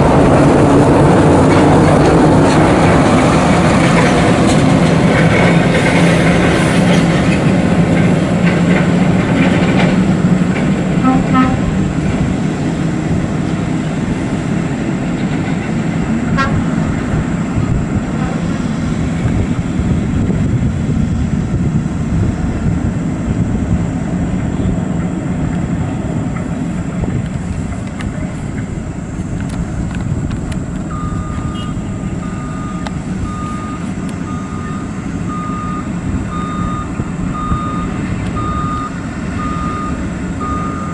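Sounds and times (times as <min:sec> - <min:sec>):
truck diesel engine rumbling: 0:00.0 - 0:40.9
horn toots: 0:11.0 - 0:11.8, 0:16.3 - 0:16.8, 0:31.4 - 0:32.0
reversing alarm beeping: 0:30.8 - 0:40.9.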